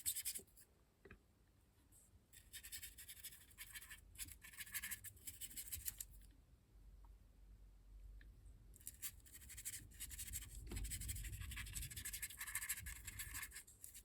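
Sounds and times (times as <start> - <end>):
small brush scratching: 0.0 - 0.6, 2.4 - 6.2, 8.8 - 14.0.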